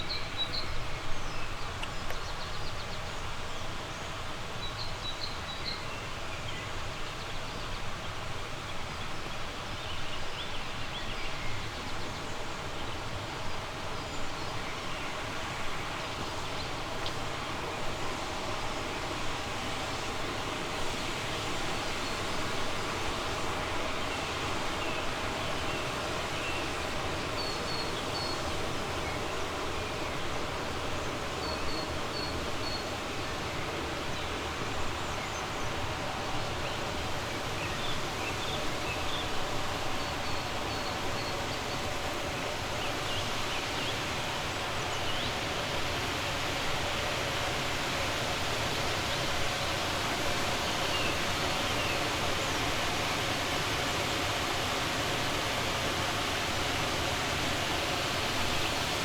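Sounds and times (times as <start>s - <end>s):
river flowing: 12.5s - 59.0s.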